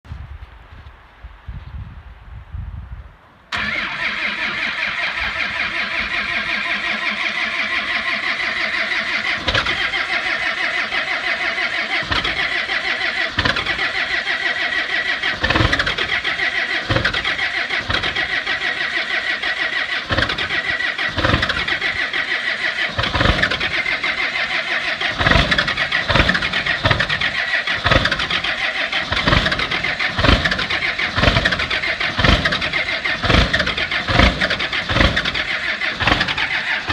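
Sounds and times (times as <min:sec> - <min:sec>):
diesel engine starting and clattering: 0:03.5 - 0:36.9
sharp uneven thumps: 0:25.0 - 0:36.9.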